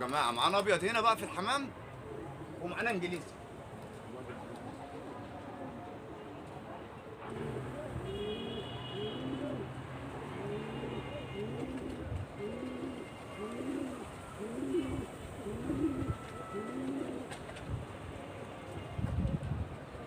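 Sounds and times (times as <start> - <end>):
pigeons cooing: 2.0 - 3.0, 9.0 - 17.5.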